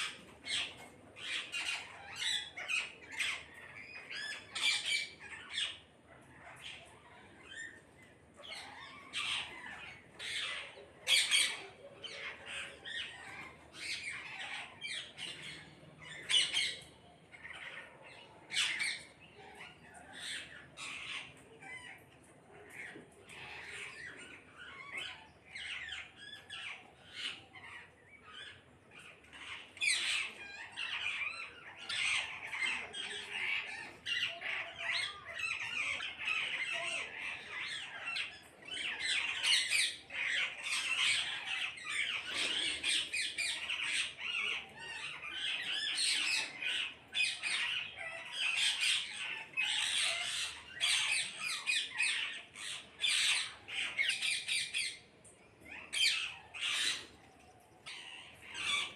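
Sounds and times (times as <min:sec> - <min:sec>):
parrots squawking: 0:00.0 - 0:58.9.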